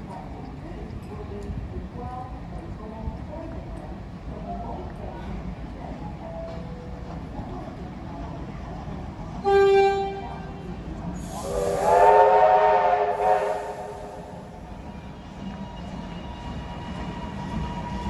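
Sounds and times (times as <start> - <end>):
train whistle toot: 9.4 - 10.5, 11.2 - 14.6
train whistle chord with hiss: 11.2 - 14.6.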